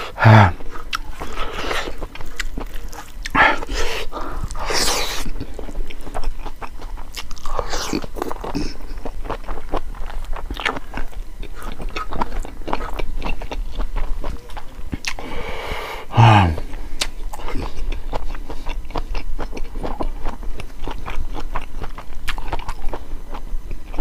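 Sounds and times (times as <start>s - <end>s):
person chewing and lip smacking: 0.0s - 15.4s, 16.5s - 24.0s.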